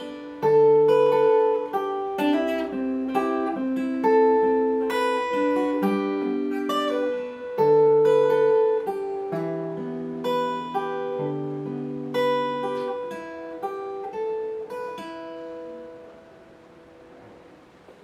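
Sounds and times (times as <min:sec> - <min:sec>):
acoustic guitar: 0:00.0 - 0:18.0.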